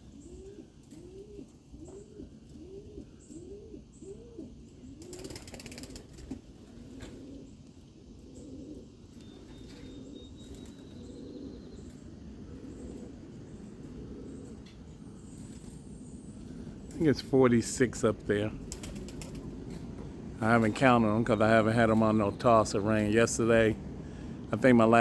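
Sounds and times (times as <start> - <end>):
pigeons cooing: 0.0 - 25.0
wings flapping: 5.0 - 7.3, 18.6 - 19.9.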